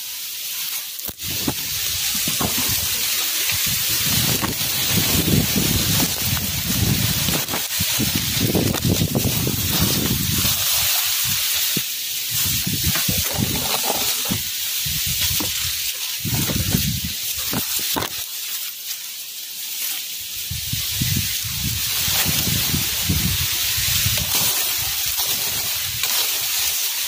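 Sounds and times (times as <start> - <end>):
steady high hiss: 0.0 - 27.0
wind gusting against microphone: 1.2 - 11.6, 12.3 - 17.6, 20.5 - 26.0.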